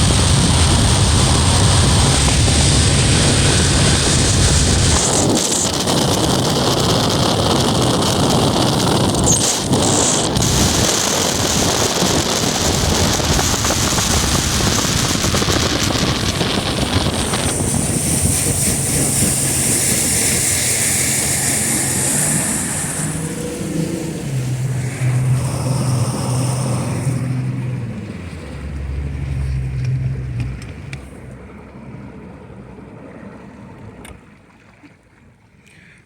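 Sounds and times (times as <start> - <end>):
wind buffeting microphone: 0.0 - 31.4
outboard motor running: 0.0 - 35.4.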